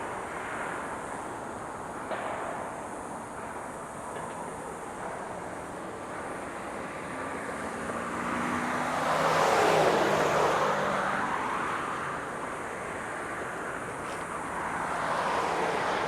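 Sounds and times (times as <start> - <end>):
car passing by: 6.8 - 16.0.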